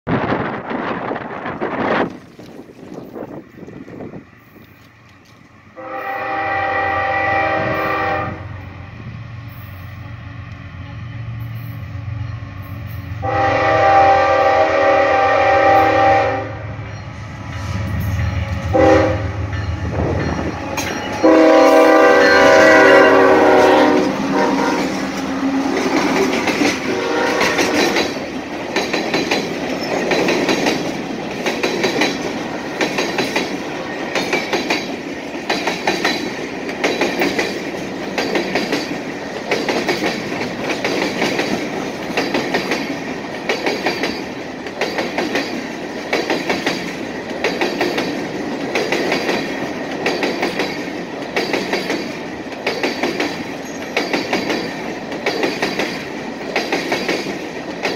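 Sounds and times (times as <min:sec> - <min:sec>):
train air horn blasts: 0:05.8 - 0:08.7, 0:13.2 - 0:16.8, 0:17.8 - 0:19.6, 0:20.8 - 0:25.8, 0:26.8 - 0:28.0
wheels clacking over rails: 0:22.5 - 0:57.9.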